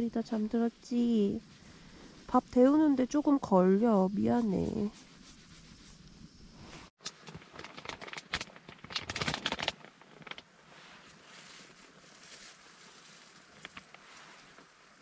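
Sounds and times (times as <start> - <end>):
rustling of things handled: 0.2 - 15.0
faint steady hiss: 10.4 - 15.0.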